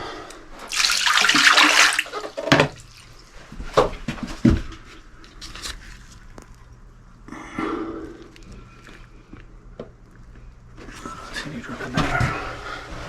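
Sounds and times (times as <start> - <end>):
toilet flushing: 0.6 - 3.4.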